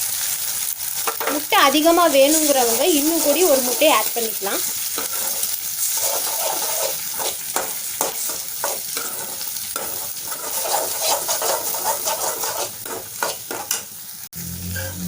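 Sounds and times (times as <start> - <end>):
eggs sizzling in oil: 0.0 - 15.0
spatula scraping a pan: 2.3 - 13.9.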